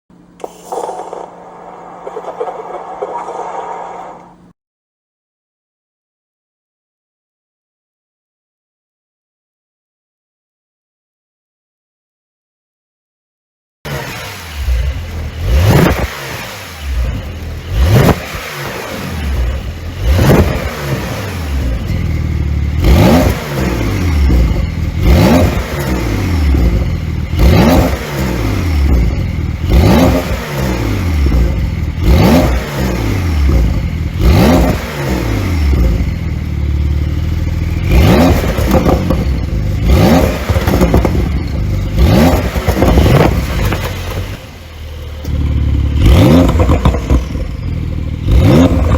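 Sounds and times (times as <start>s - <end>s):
car exhaust revving: 0.4s - 4.5s, 13.9s - 48.9s.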